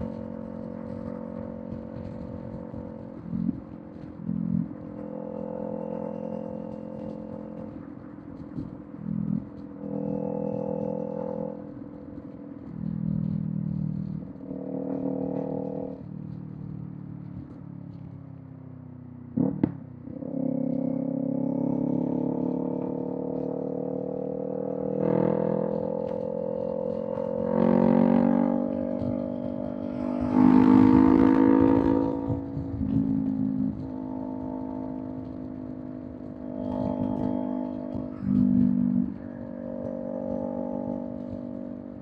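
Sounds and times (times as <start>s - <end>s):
motorcycle engine revving: 0.0s - 17.6s, 19.3s - 42.0s.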